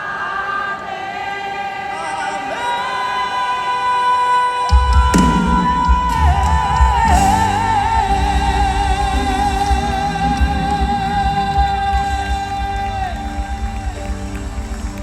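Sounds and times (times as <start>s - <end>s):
woman singing with vibrato: 0.0s - 14.6s
gospel band playing: 4.2s - 15.0s.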